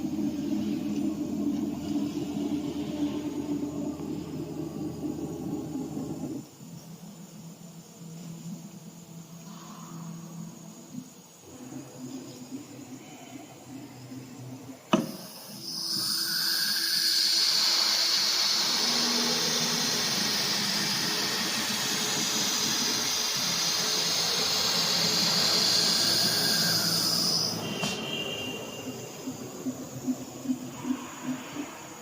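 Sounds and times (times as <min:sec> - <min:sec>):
router spindle high-pitched whine: 0:15.0 - 0:29.4.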